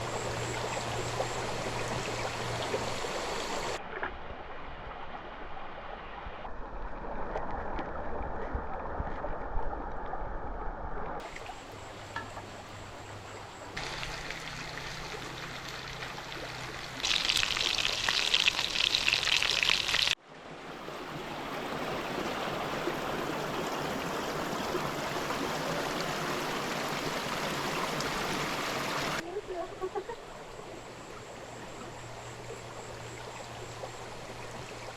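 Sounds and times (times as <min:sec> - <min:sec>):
stream water flowing: 0:00.0 - 0:03.8, 0:11.2 - 0:34.9.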